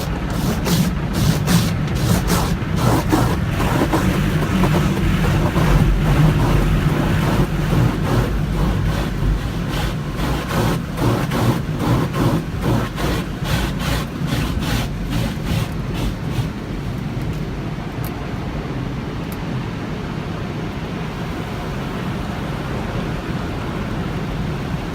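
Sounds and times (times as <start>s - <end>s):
water slapping and spraying: 0.0s - 17.2s
car wash equipment rumbling: 0.0s - 24.9s.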